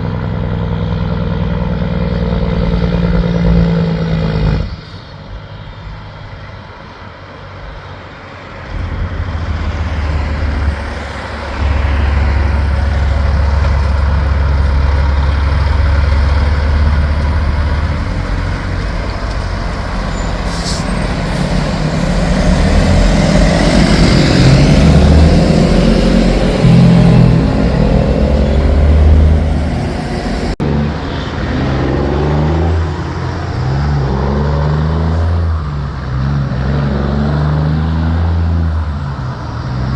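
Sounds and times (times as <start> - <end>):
truck diesel engine running: 8.7 - 31.0.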